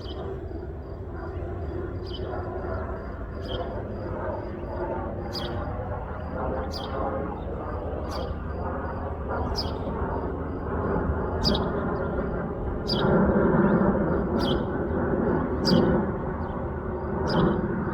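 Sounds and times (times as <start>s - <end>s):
airliner jet rumble: 0.0s - 17.9s
bird chirping: 9.6s - 9.8s.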